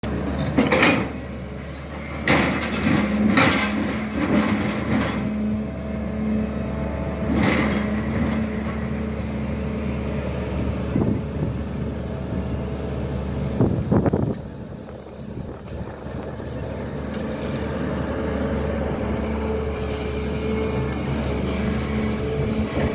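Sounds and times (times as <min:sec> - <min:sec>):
excavator diesel engine running: 0:00.0 - 0:22.9
excavator digging knocks: 0:00.1 - 0:05.5.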